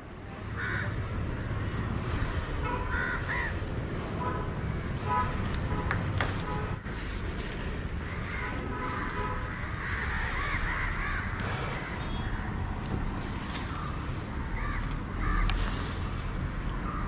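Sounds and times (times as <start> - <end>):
crows cawing: 0.6 - 1.0, 2.8 - 3.7, 8.0 - 12.5, 13.6 - 15.7.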